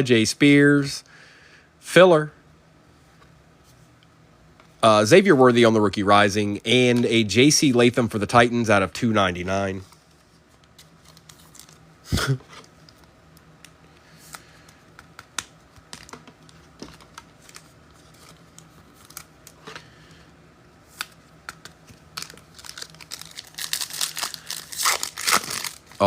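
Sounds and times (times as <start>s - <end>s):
foil wrapper crinkling: 10.7s - 11.9s, 14.2s - 19.8s, 21.0s - 26.0s.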